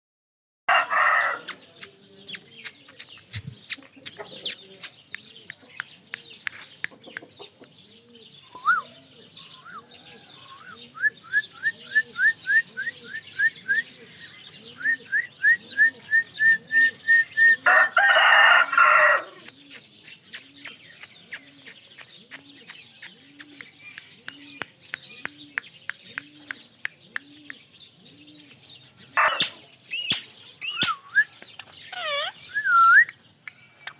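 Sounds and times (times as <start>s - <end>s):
parrot screeching: 29.2s - 30.9s, 31.9s - 32.8s
parrot quick rising chirps: 29.2s - 31.0s, 31.9s - 33.0s.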